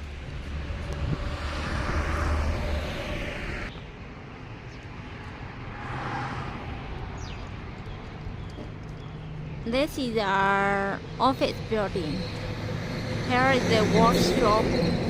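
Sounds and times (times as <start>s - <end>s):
vehicles passing with low rumble: 0.0s - 15.0s.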